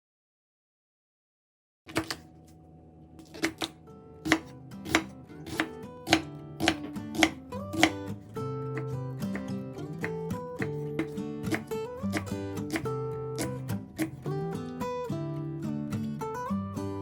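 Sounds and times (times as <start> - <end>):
knife chopping on cutting board: 1.9 - 2.3, 3.2 - 8.1, 8.7 - 14.3
acoustic guitar music: 2.2 - 17.0.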